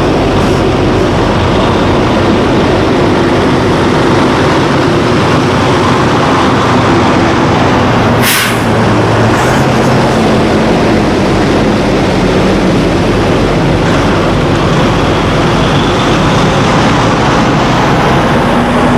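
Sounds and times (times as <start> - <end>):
diesel trucks passing: 0.0 - 18.9
short sharp hiss: 8.2 - 8.7.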